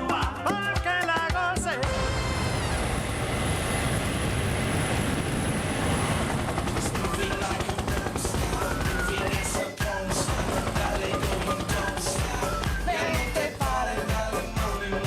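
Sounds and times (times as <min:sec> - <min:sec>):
aircraft engine rushing: 0:01.8 - 0:13.6.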